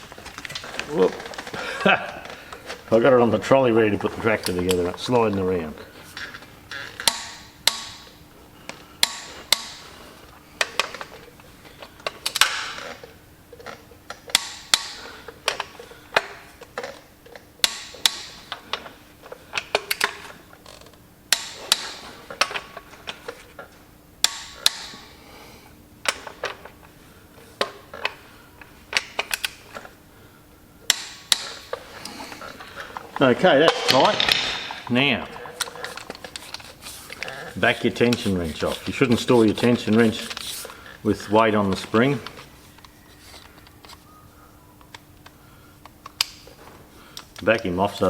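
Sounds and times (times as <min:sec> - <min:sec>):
torque wrench clicking: 0:09.0 - 0:09.9, 0:17.6 - 0:18.9, 0:19.5 - 0:22.7, 0:30.9 - 0:31.8.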